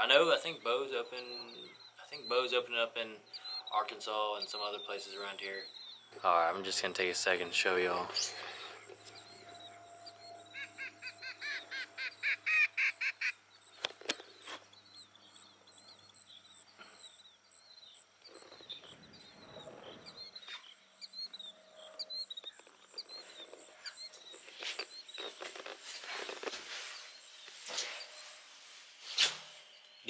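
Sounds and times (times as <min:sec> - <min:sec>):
loud bird calls: 0:00.0 - 0:30.0
short high bird chirps: 0:08.1 - 0:14.6.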